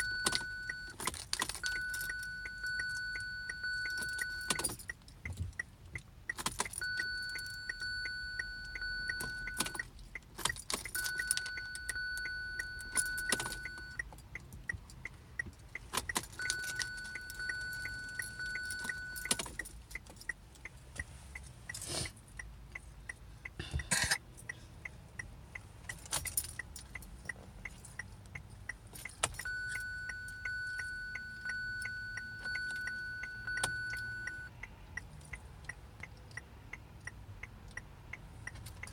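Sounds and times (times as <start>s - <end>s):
car keys jangling: 0.0s - 20.7s, 25.8s - 35.4s.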